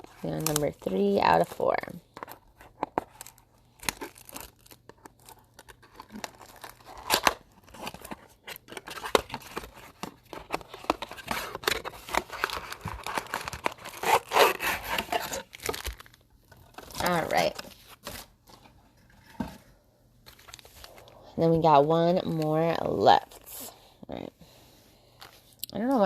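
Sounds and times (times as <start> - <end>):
cardboard and wrapping ripping: 0.0 - 18.3
packs crinkling: 0.0 - 18.4.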